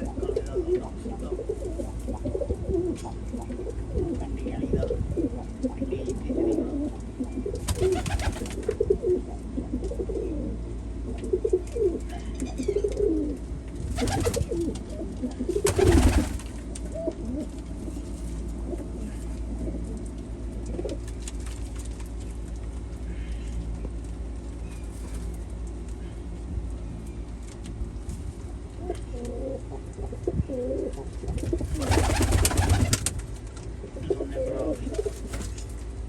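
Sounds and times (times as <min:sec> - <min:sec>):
pigeons cooing: 0:00.0 - 0:18.0, 0:28.8 - 0:33.1, 0:33.8 - 0:35.6.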